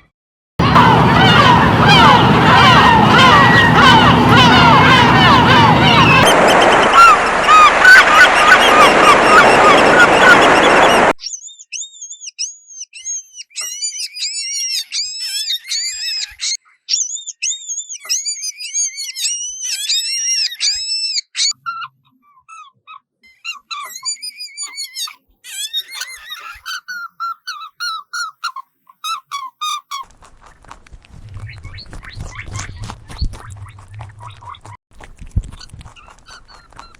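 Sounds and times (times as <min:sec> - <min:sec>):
noisy background: 0:00.6 - 0:11.1
chorus of chirps: 0:00.6 - 0:16.2
bird chirping: 0:00.8 - 0:16.2.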